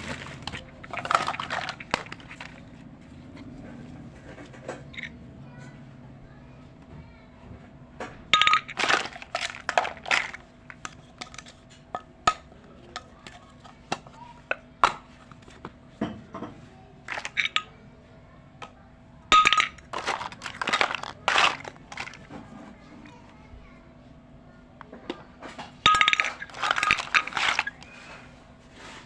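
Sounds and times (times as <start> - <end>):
toy kitchen pieces clinking: 0.0 - 2.8, 4.2 - 5.2, 8.4 - 15.7, 17.0 - 17.8, 18.6 - 23.3, 24.8 - 28.4.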